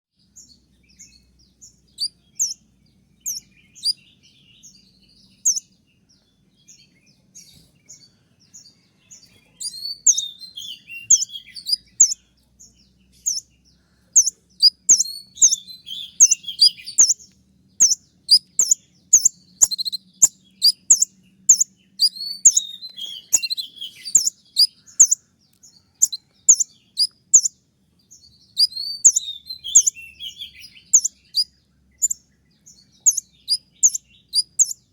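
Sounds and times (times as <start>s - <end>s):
lower bird twittering: 0.2s - 34.9s
sunbird high calls: 6.8s - 12.4s, 13.1s - 27.6s, 28.4s - 34.9s.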